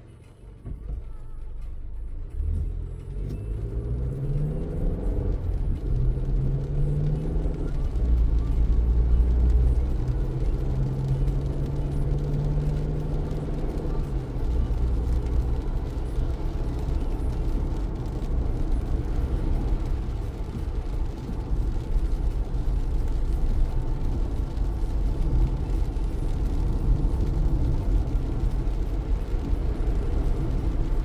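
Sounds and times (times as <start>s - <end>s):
car tyres rumbling on wet road: 0.5s - 31.0s.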